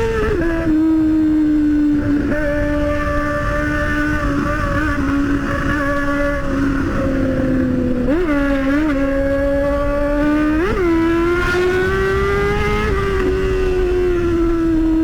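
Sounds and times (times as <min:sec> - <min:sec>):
motorcycle engine with throttle blips: 0:00.0 - 0:15.0.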